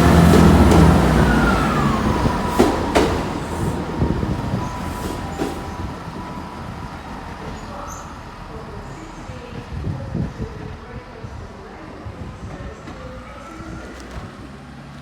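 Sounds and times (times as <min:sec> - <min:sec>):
train wheels clicking: 0:00.0 - 0:06.4
train running past: 0:00.0 - 0:14.9.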